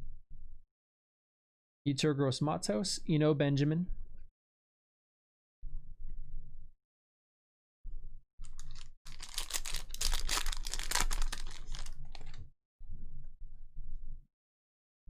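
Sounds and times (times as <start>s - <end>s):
foil wrapper tearing and crinkling: 8.4s - 12.4s.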